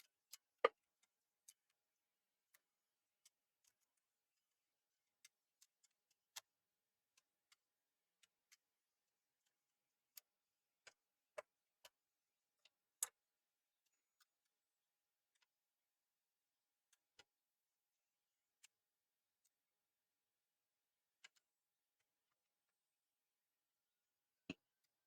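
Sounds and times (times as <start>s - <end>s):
small clicks and taps of tools: 0.0s - 1.8s, 2.4s - 4.5s, 5.2s - 15.6s, 16.8s - 17.4s, 21.2s - 22.9s, 24.4s - 25.0s.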